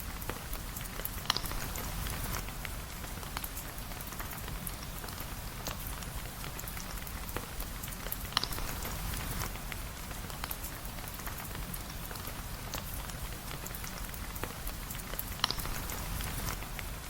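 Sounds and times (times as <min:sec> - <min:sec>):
steady rain: 0:00.0 - 0:17.0
sharp ticks and pops: 0:00.2 - 0:01.8.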